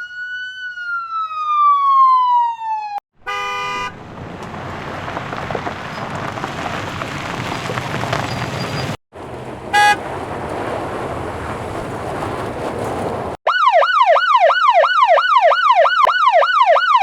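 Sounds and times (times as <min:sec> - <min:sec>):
siren wail: 0:00.0 - 0:03.0, 0:13.5 - 0:17.0
short horn beep: 0:03.2 - 0:04.0, 0:09.7 - 0:10.0
vehicle rumble and hiss: 0:03.7 - 0:13.4.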